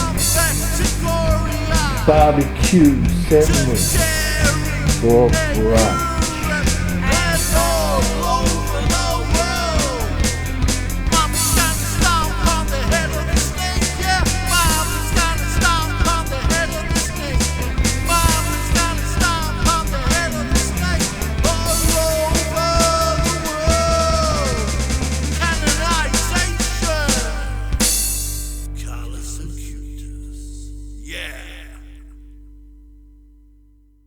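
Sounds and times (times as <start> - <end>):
person singing: 0.0 - 27.9, 28.7 - 32.2
steady drum beat: 0.0 - 28.7
heavy rock music: 0.0 - 32.2.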